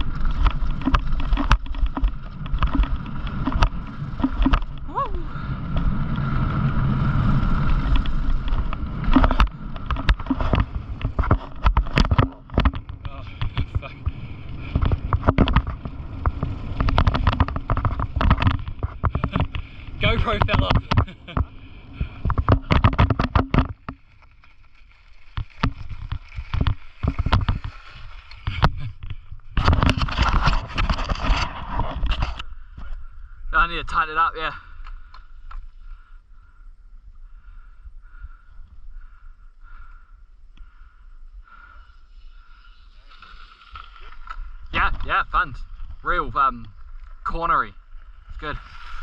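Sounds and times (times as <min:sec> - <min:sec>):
bike rattling and knocking: 0:00.0 - 0:05.0, 0:05.7 - 0:32.9
bike tyres rumbling on dirt: 0:00.0 - 0:49.0.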